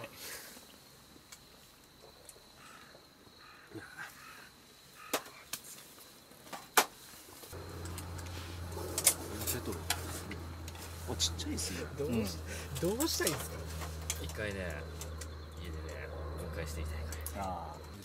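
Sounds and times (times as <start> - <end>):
steady low hum: 7.5 - 18.0.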